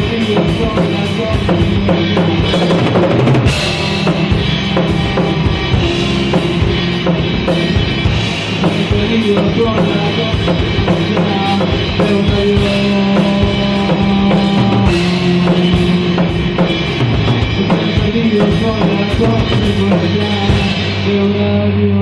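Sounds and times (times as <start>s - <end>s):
rock band playing: 0.0s - 22.0s
cymbal crash: 2.4s - 9.0s.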